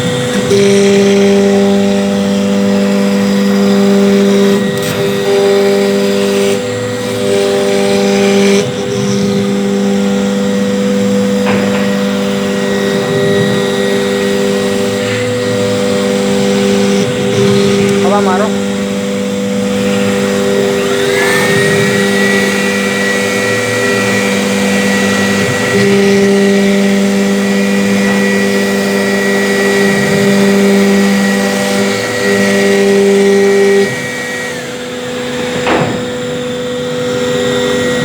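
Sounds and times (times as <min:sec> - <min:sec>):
cnc router high whine: 0:00.0 - 0:38.0.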